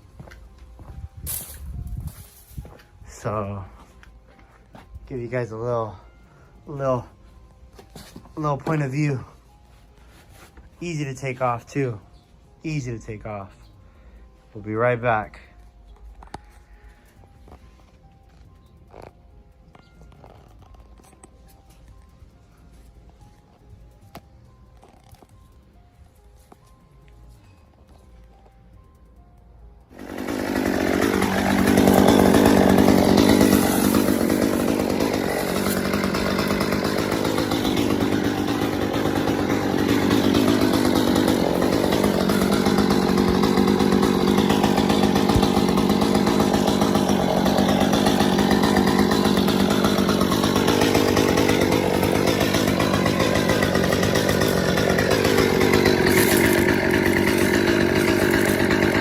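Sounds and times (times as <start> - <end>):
chainsaw running and cutting: 8.1 - 9.6, 10.8 - 12.0, 29.8 - 59.0.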